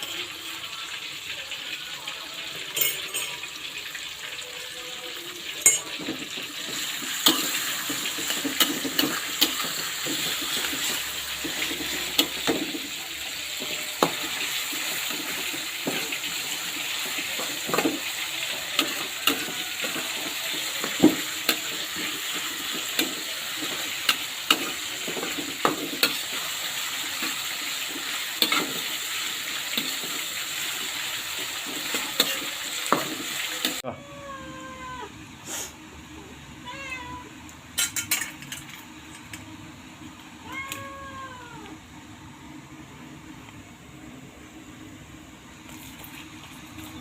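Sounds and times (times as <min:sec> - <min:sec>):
fish frying in hot oil: 0:00.0 - 0:33.9
cat meowing: 0:33.8 - 0:35.1, 0:36.6 - 0:37.4, 0:40.4 - 0:41.8.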